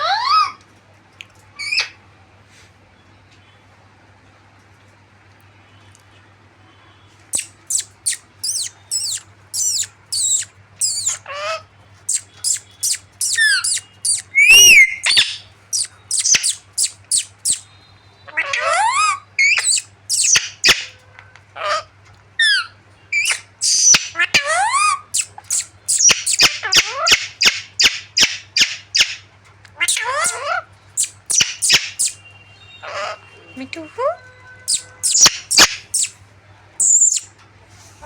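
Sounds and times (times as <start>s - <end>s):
parrots squawking: 7.3s - 17.7s, 18.3s - 21.0s, 21.6s - 33.3s, 34.6s - 36.2s, 36.8s - 37.3s.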